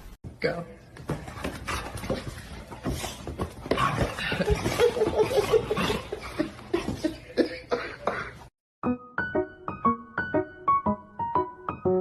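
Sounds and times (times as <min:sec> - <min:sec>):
person laughing: 0:04.2 - 0:08.5.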